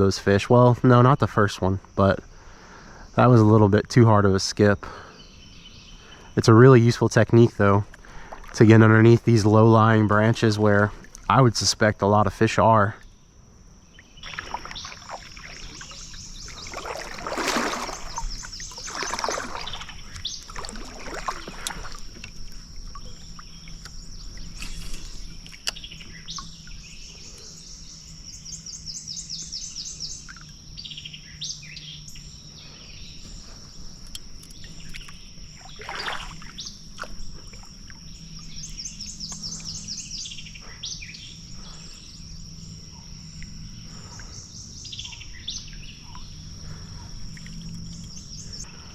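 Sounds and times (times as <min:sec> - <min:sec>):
high insect drone: 0:00.0 - 0:48.9
bird trilling: 0:13.9 - 0:22.0.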